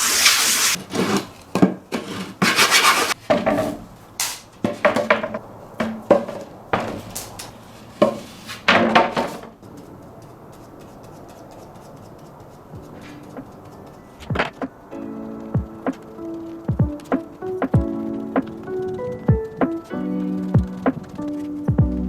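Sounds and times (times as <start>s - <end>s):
clattering knocks and scrapes: 0.0s - 14.8s.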